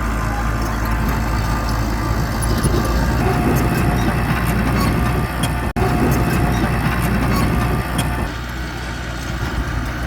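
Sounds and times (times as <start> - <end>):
bulldozer diesel engine running: 0.0 - 10.0.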